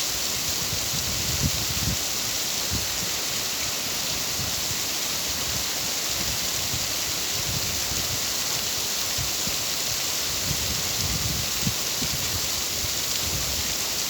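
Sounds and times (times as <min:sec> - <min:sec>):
rain hiss: 0:00.0 - 0:14.0.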